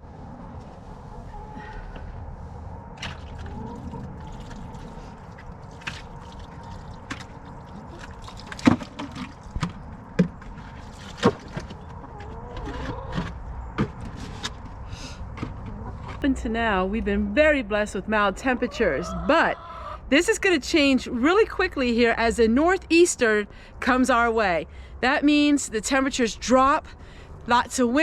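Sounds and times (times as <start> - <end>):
low steady rumble: 0.0 - 11.0, 14.7 - 28.0
chickens clucking: 11.7 - 13.4, 15.6 - 16.1, 18.4 - 20.0.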